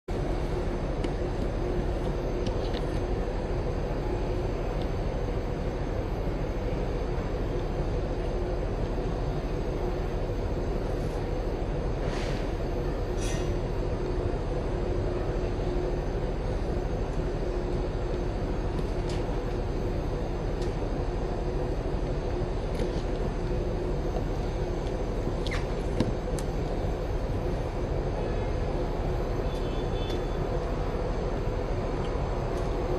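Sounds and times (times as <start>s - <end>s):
fan air rush with hum: 0.1s - 32.9s.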